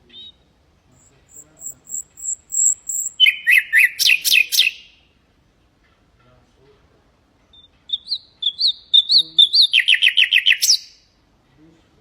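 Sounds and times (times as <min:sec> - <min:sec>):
nightingale singing: 0:00.0 - 0:05.1, 0:07.5 - 0:11.2.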